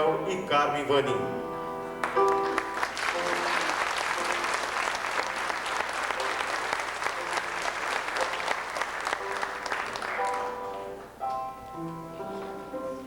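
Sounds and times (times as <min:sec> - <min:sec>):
audience applauding: 0:02.0 - 0:11.1
instrumental music with held notes: 0:09.2 - 0:13.0.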